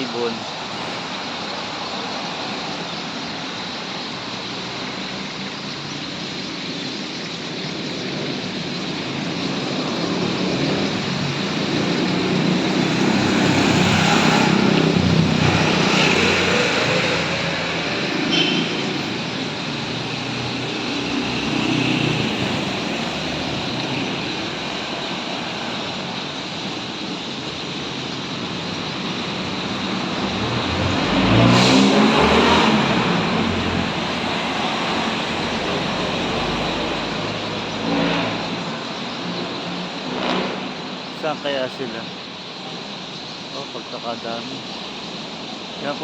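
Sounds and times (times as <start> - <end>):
road traffic noise: 0.0 - 46.0
vehicle passing close: 7.4 - 26.4, 28.1 - 41.8.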